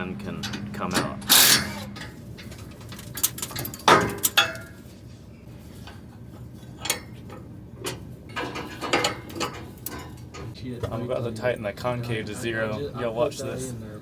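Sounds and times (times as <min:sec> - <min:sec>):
metal clanks and clinks: 0:00.0 - 0:04.9, 0:07.8 - 0:10.6.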